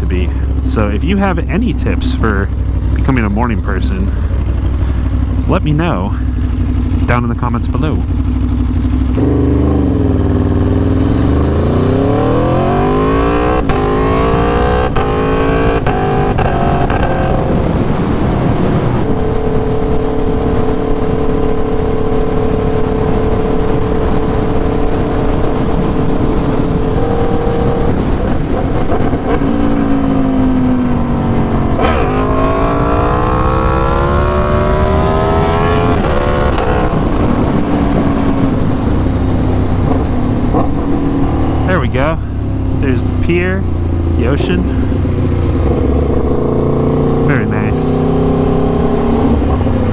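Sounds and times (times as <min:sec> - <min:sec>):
motorcycle engine revving: 0:00.0 - 0:49.9
wind rush: 0:16.2 - 0:43.2.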